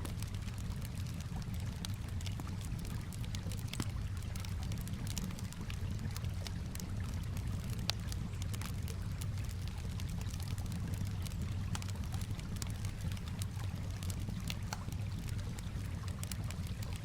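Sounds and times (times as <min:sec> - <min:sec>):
campfire crackling: 0:00.0 - 0:17.0
fire popping: 0:00.0 - 0:17.0.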